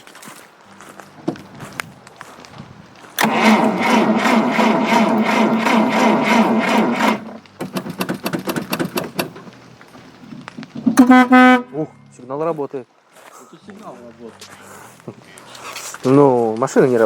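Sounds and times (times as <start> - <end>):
starter cranking car engine: 3.2 - 9.5.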